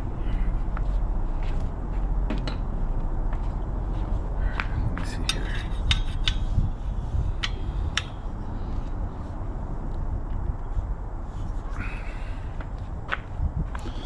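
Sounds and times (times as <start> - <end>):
steady low hum: 0.0 - 14.0
metal tools clinking on bicycle parts: 5.0 - 6.5.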